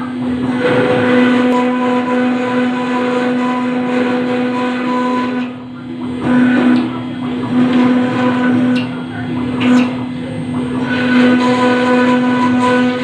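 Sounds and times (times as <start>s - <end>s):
router spindle whining: 10.7s - 13.0s.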